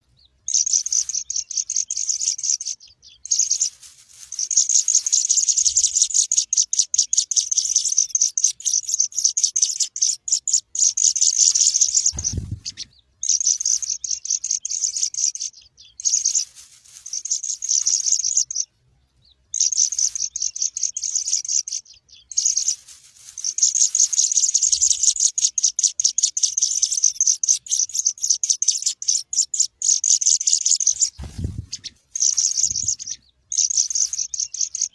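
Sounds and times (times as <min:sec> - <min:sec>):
baby birds chirping: 0:00.2 - 0:34.9
low thump: 0:12.1 - 0:12.9.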